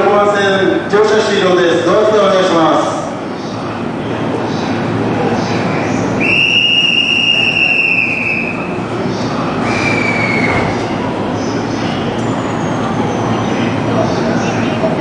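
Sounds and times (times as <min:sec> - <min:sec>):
electric train rumble: 0:00.0 - 0:15.0
high wheel squeal: 0:12.1 - 0:13.8.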